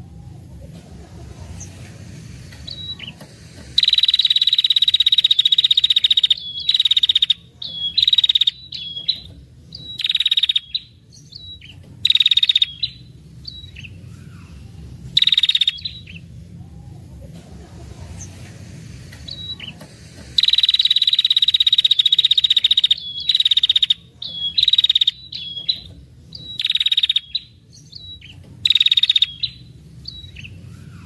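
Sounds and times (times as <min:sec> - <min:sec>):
bird giving rattling trill: 0:02.6 - 0:10.8, 0:11.6 - 0:13.0, 0:15.2 - 0:16.2, 0:20.4 - 0:27.4, 0:28.3 - 0:29.6.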